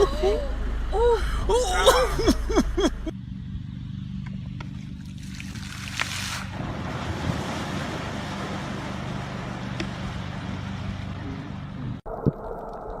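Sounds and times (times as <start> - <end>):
low motor hum: 0.0 - 13.0
wind: 0.0 - 13.0
rushing water: 5.0 - 13.0.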